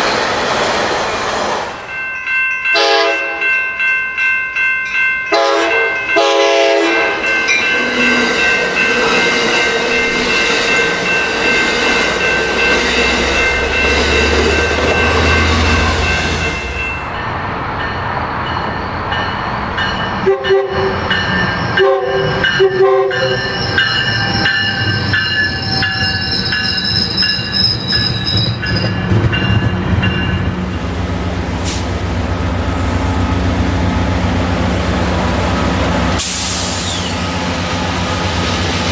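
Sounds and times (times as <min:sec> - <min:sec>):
train cars rumbling: 0:00.0 - 0:38.9
train horn: 0:02.7 - 0:03.5, 0:05.3 - 0:07.3, 0:20.2 - 0:20.9, 0:21.8 - 0:23.4
wheel squeal: 0:23.4 - 0:29.6.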